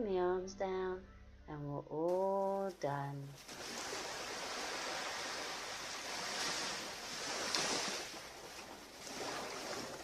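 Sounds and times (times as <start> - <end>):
waves washing on beach: 3.4 - 10.0.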